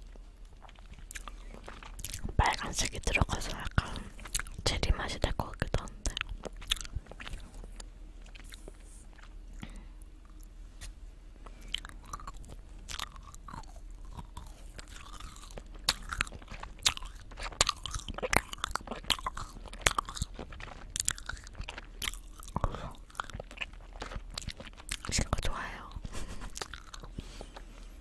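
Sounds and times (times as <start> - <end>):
sticky chewing clicks: 0.0 - 10.5, 11.4 - 27.8.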